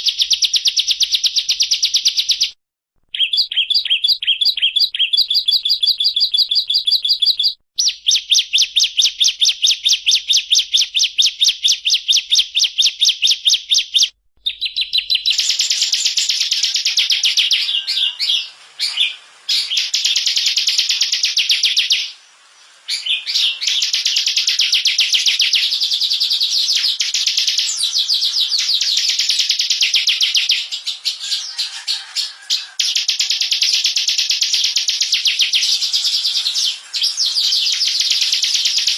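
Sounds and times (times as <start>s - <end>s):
bird rapid high trill: 3.2s - 22.2s, 22.9s - 38.9s.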